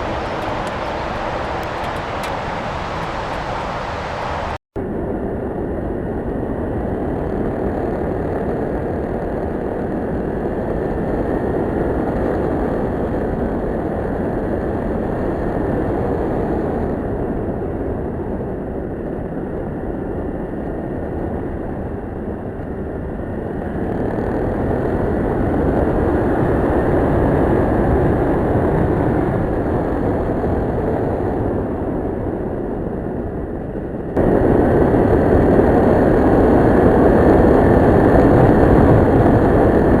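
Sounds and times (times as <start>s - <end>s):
motorcycle engine: 0.0s - 4.6s
wind and road noise: 0.0s - 40.0s.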